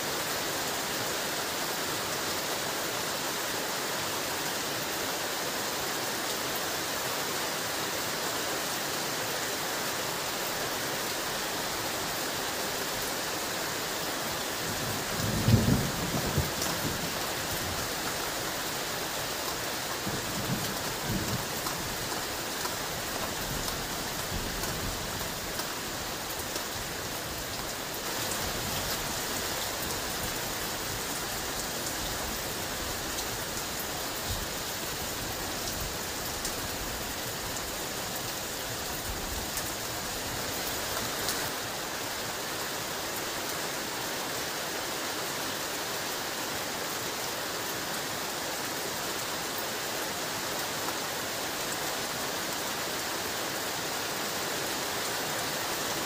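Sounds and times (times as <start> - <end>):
heavy rain falling: 0.0 - 56.0
thunder rumbling: 15.2 - 17.2.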